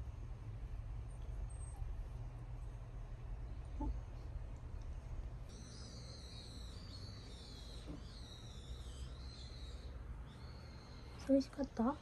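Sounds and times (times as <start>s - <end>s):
low steady hum: 0.0s - 12.0s
small bird warbling song: 5.5s - 12.0s.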